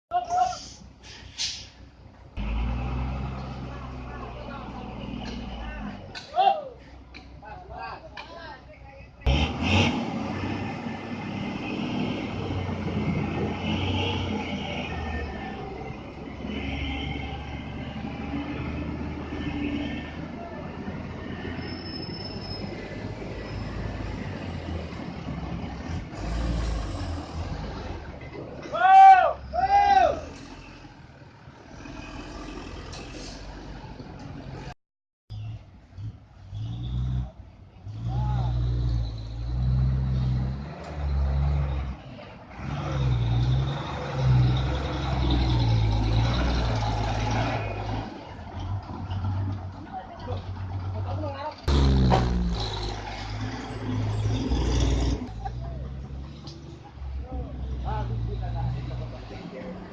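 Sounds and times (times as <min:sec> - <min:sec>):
truck engine rumble: 0:00.1 - 0:59.9
brief high squeal: 0:21.5 - 0:23.8.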